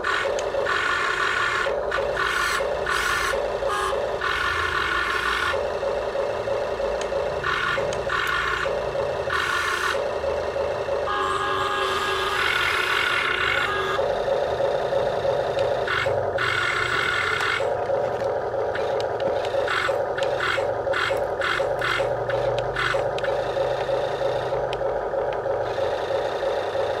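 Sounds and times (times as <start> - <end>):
small electric motors whirring: 0.0 - 27.0
scraping rattling bursts: 15.8 - 23.4.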